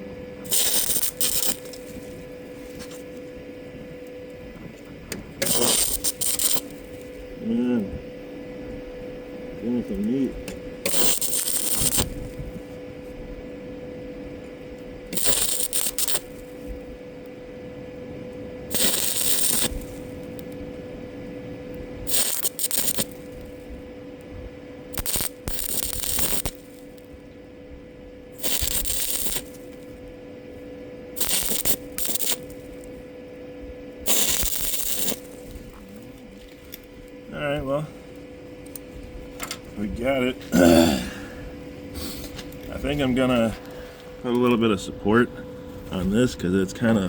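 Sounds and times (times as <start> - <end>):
steady hum: 0.0 - 47.0
welding arc crackling: 0.4 - 7.9, 9.6 - 13.2, 14.5 - 17.0, 18.7 - 20.6, 22.0 - 23.8, 24.8 - 33.4, 34.0 - 40.6.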